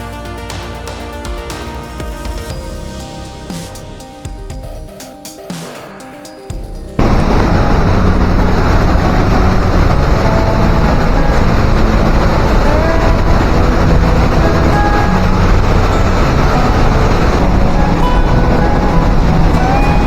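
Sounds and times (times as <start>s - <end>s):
meltwater rushing through gorge: 7.0s - 20.0s.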